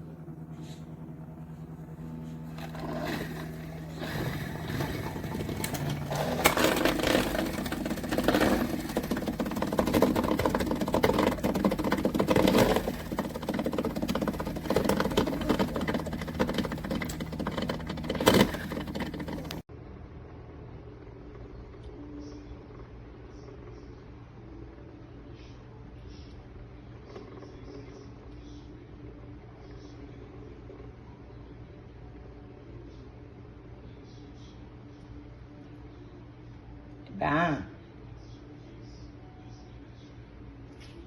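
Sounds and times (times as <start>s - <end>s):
low hum: 0.0s - 24.2s
small electric motor whirring: 0.5s - 19.6s.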